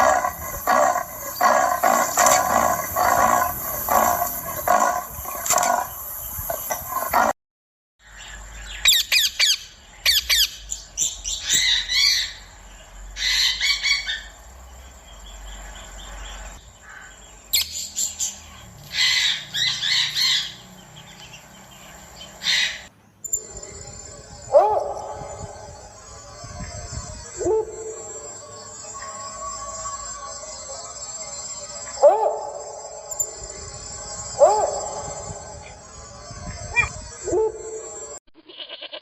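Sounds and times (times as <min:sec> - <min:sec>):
bird squawking and chirping: 0:00.0 - 0:05.9, 0:18.9 - 0:20.7, 0:22.3 - 0:23.5
loud animal sound: 0:00.0 - 0:07.4, 0:11.4 - 0:14.5, 0:15.3 - 0:39.0.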